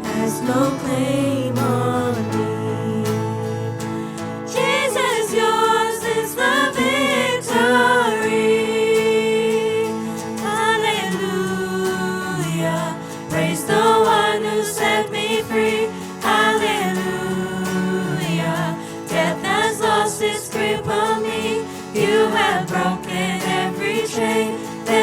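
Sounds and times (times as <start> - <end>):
sustained accompaniment chords: 0.0 - 10.4
choir singing worship song: 0.0 - 25.0.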